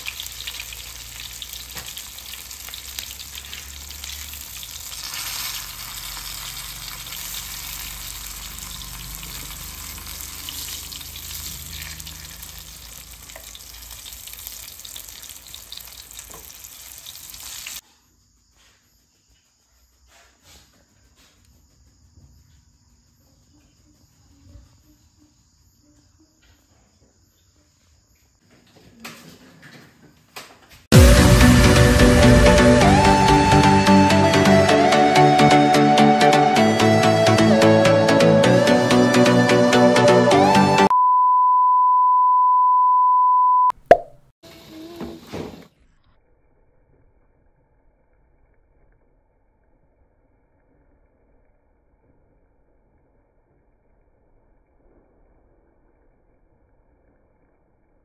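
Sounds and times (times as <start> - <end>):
food sizzling in hot oil: 0.0 - 17.8.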